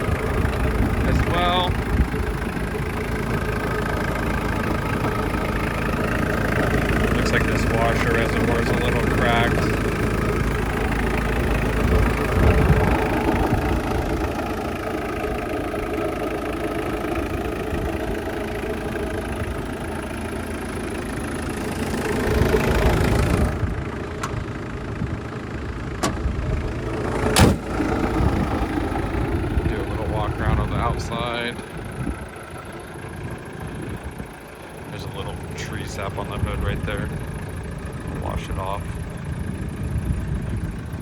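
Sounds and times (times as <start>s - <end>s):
diesel engine idling: 0.0s - 41.0s.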